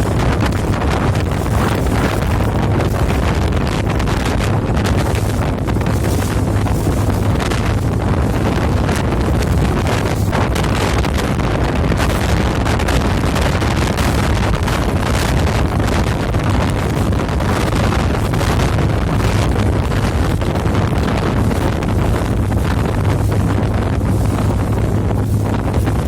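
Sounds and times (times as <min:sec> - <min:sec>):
boat engine droning: 0:00.0 - 0:26.0
wind buffeting microphone: 0:00.0 - 0:26.0.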